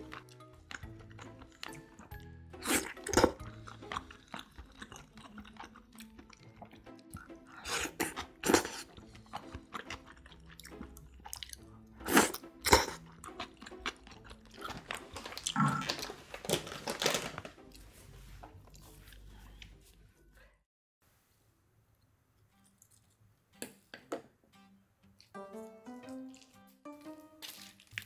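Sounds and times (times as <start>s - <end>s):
chewing and crunching food: 0.0s - 20.0s, 26.0s - 28.0s.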